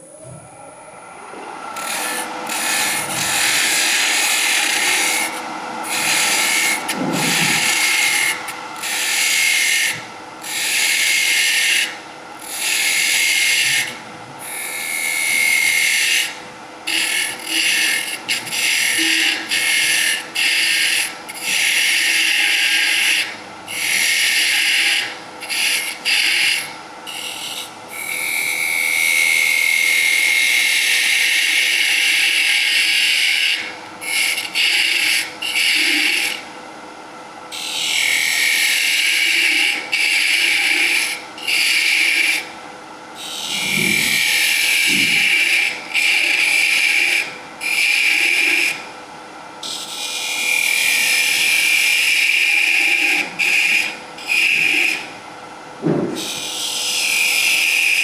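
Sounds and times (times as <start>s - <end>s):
lathe humming: 0.0s - 36.4s, 43.2s - 48.7s
gouge cutting spinning wood: 1.2s - 28.8s, 43.2s - 48.8s.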